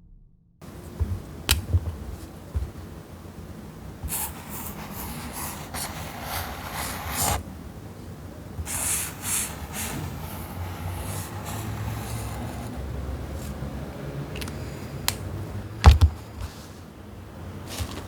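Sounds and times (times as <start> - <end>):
faint steady hum: 0.1 - 18.0
rustling and scraping: 15.8 - 16.9, 17.6 - 18.0.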